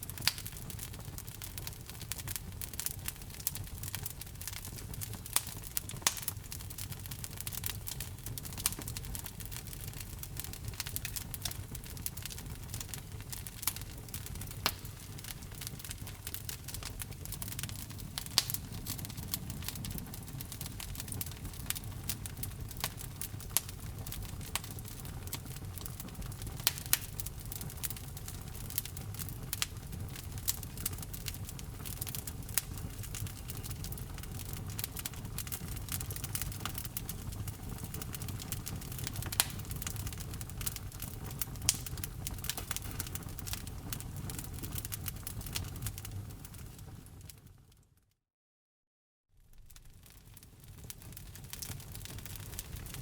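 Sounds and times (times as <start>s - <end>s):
fire crackling and popping: 0.0s - 47.7s, 49.4s - 53.0s.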